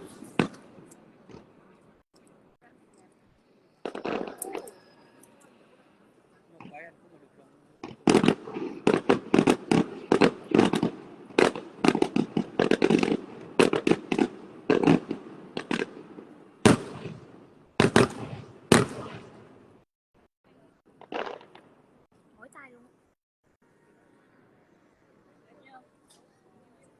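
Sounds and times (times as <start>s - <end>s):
fireworks bangs and crackles: 0.0s - 1.8s, 3.8s - 5.5s, 6.5s - 19.9s, 20.9s - 21.8s.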